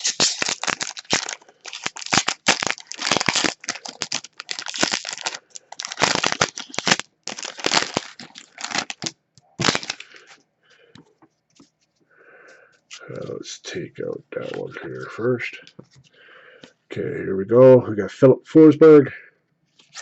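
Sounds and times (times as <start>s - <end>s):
foil wrapper crinkling and tearing: 0.0s - 10.4s, 19.8s - 20.0s.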